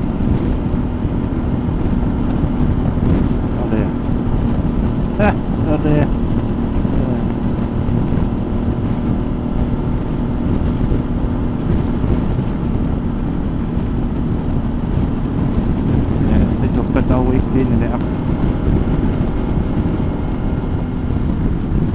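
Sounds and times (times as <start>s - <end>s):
motorcycle engine cruising: 0.0s - 21.9s
wind rushing over microphone: 0.0s - 21.9s.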